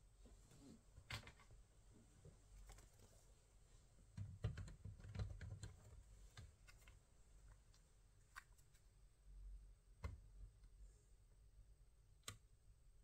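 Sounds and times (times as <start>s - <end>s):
typing on a keyboard: 4.4s - 6.0s.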